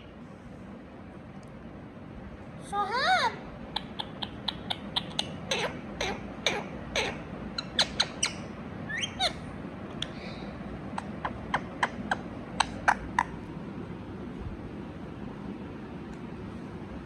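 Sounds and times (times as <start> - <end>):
parakeet chirping: 3.7 - 9.5, 10.9 - 13.4
parakeet wavering call: 3.7 - 9.5, 11.0 - 13.4.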